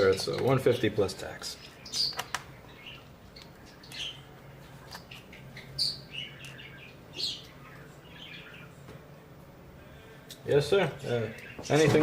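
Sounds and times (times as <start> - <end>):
small bird chirping: 1.4 - 8.8.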